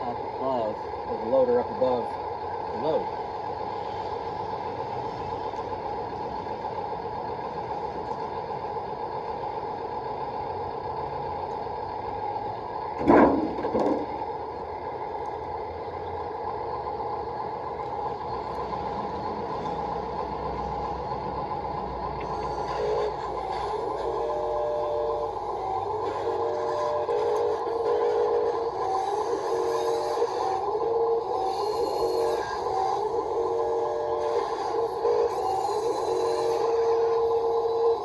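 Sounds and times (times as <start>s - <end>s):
toy electric motors whining: 22.2s - 38.0s.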